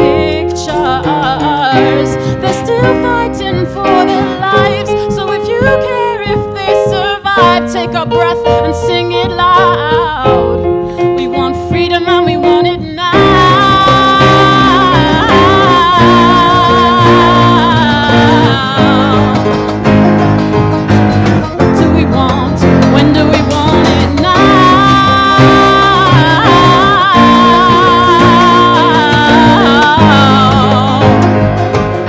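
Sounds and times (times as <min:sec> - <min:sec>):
strummed acoustic guitar: 0:00.0 - 0:32.0.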